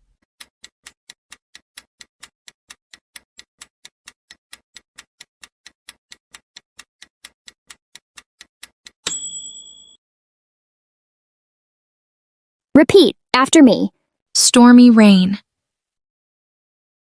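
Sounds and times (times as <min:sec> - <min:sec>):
clock ticking: 0:00.4 - 0:09.0
bell chime: 0:09.1 - 0:10.0.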